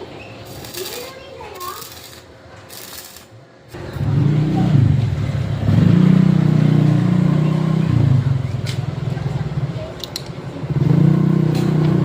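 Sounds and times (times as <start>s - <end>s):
car engine starting and revving: 3.8s - 8.4s, 10.7s - 12.0s.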